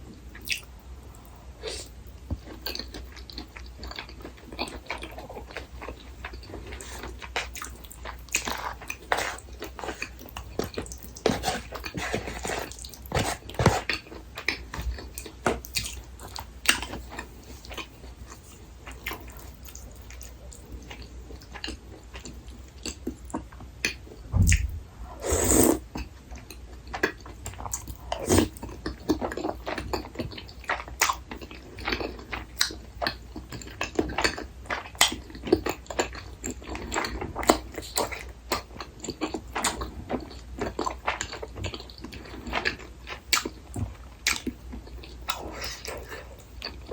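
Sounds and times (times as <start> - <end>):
person chewing food: 0.3 - 46.9
low thump: 24.3 - 25.1.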